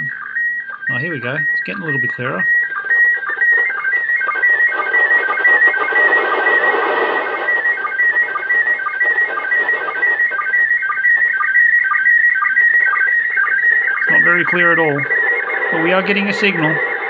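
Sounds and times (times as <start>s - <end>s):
warbling radio picture tones: 0.0s - 17.0s
radio hiss: 4.8s - 10.4s, 14.0s - 17.0s.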